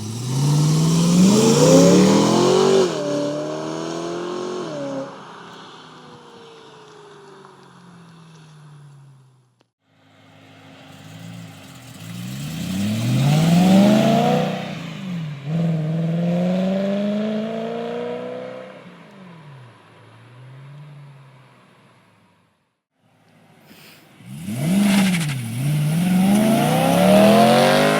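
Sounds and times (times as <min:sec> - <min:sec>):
car engine accelerating hard: 0:00.0 - 0:05.2, 0:10.7 - 0:18.9, 0:24.2 - 0:27.9.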